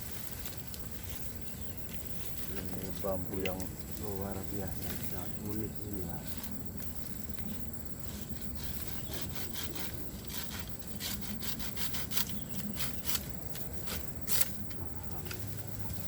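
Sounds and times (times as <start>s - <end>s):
hand saw cutting bamboo: 8.6s - 13.3s.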